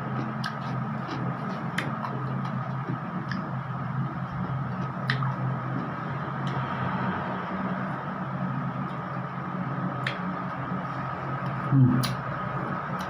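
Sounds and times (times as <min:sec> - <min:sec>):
person chewing: 0:00.0 - 0:06.6
low hum: 0:00.0 - 0:13.0.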